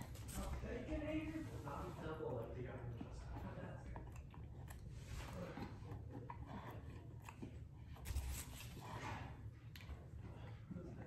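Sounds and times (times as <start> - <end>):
person chewing food: 2.2 - 11.0.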